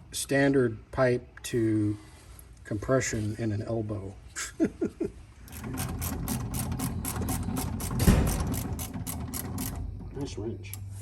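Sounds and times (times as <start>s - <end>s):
ratcheting wrench clicking: 5.5s - 9.9s, 10.6s - 11.0s
loud clunk: 7.6s - 9.8s.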